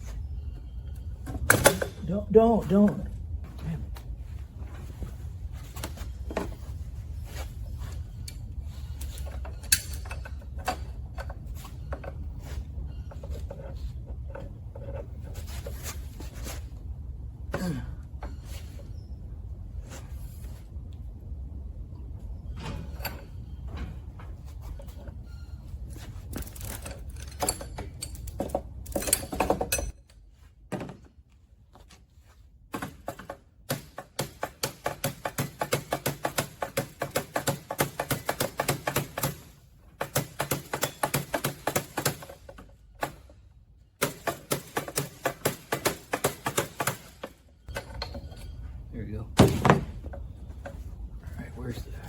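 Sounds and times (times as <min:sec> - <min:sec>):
rapid clicking of hand tool: 0:33.1 - 0:42.4.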